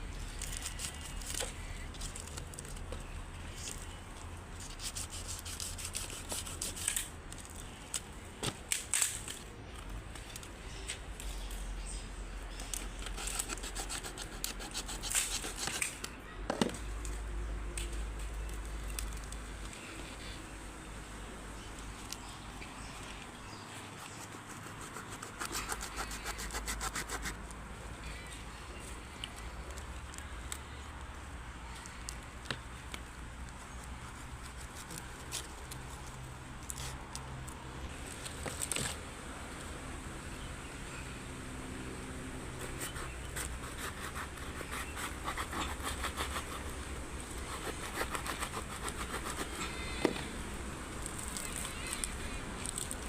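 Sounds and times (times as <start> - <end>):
rubbing and scraping: 4.6 - 7.6, 12.6 - 16.1, 23.8 - 27.4.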